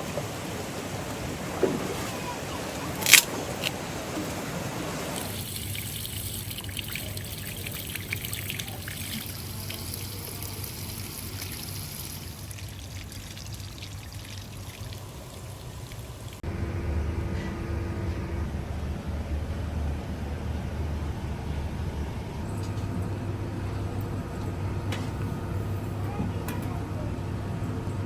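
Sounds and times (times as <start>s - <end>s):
water trickling and splashing: 0.0s - 16.4s.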